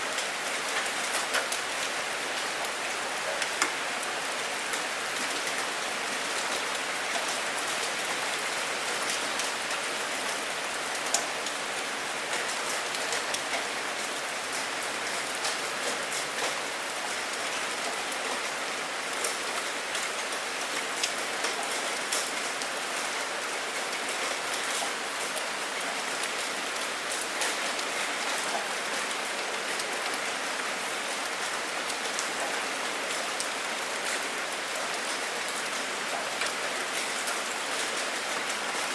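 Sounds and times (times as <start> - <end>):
steady rainfall hiss: 0.0 - 38.9
raindrop ticks: 11.1 - 11.6.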